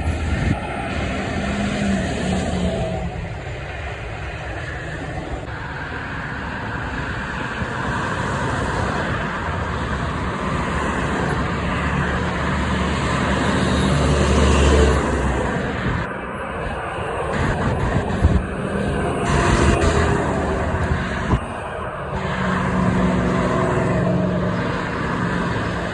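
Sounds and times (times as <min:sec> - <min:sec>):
road traffic: 0:00.0 - 0:25.9
vehicle engine passing: 0:17.0 - 0:25.9.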